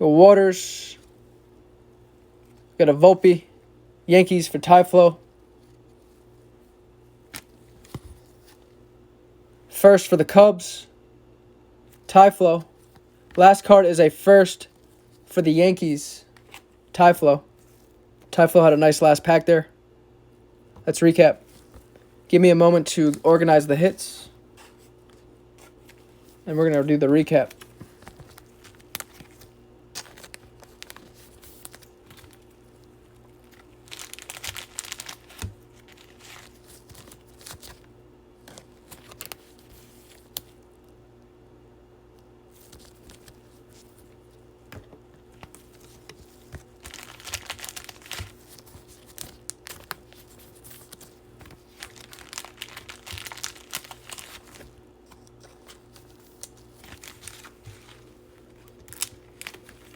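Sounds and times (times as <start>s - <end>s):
faint steady hum: 0.0s - 59.9s
plastic packaging crinkling: 25.1s - 40.6s, 45.2s - 59.9s.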